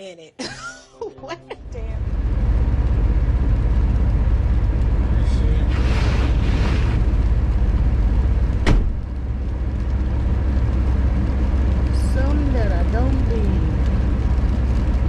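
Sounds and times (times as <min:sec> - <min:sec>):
hissing swell: 0:00.8 - 0:08.6
car engine low rumble: 0:01.5 - 0:15.0.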